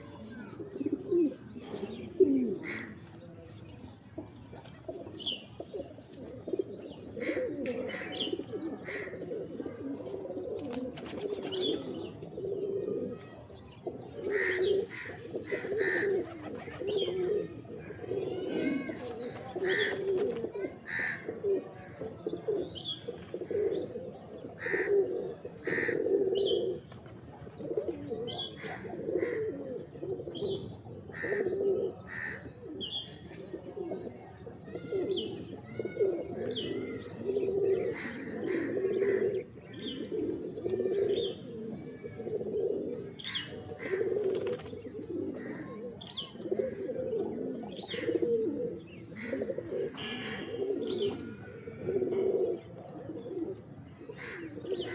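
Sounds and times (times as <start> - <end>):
pigeons cooing: 0.0 - 54.9.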